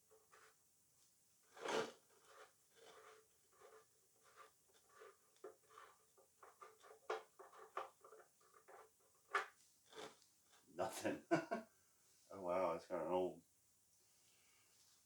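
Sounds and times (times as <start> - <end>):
hand tools scraping and clicking: 1.6 - 10.2.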